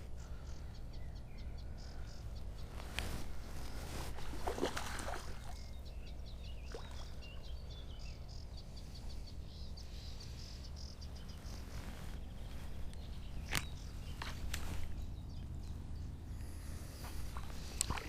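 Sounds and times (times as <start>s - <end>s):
birds singing: 0.0s - 18.0s
rustles and clicks: 11.3s - 15.1s.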